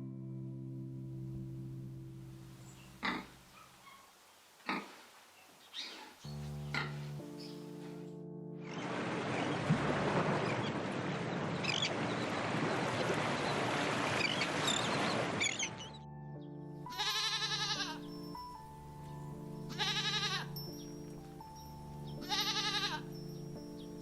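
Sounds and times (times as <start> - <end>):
background music: 0.0 - 3.6, 6.2 - 11.8, 15.4 - 24.0
sheep or goat bleating: 16.9 - 18.0, 19.7 - 20.5, 22.2 - 23.1.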